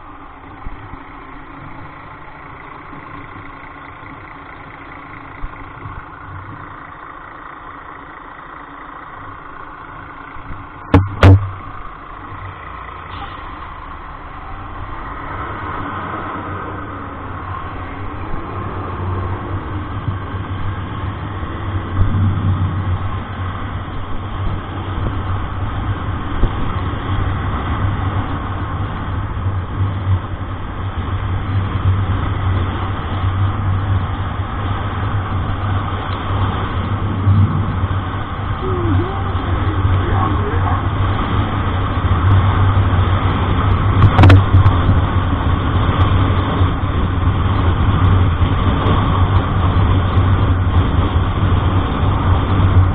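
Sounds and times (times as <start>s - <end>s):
road noise: 0.0s - 52.9s
vehicle engine hum: 0.0s - 52.9s.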